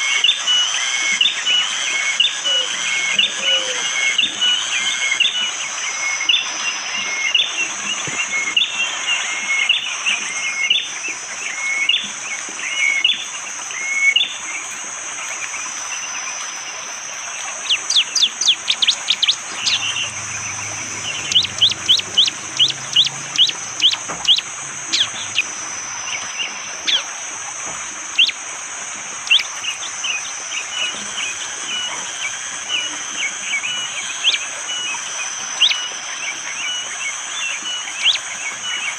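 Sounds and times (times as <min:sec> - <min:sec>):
high-pitched forest drone: 0:00.0 - 0:38.9
bird singing sharp chirps: 0:17.6 - 0:27.0.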